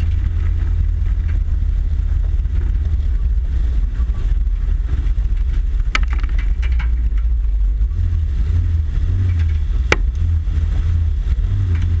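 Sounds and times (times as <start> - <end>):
tyres rolling over gravel: 0.0 - 8.0
car engine running low: 0.0 - 12.0.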